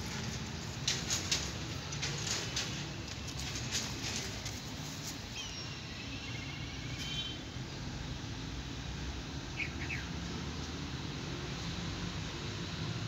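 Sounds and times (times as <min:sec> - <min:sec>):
low outdoor rumble: 0:00.0 - 0:05.7.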